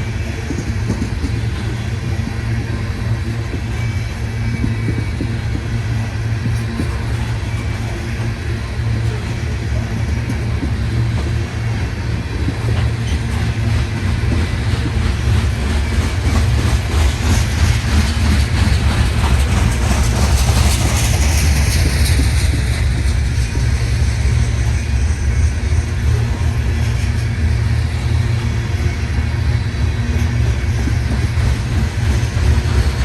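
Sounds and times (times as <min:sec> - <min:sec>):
wheels clicking over rail joints: 0:00.0 - 0:25.1
train rumbling past: 0:00.0 - 0:33.0.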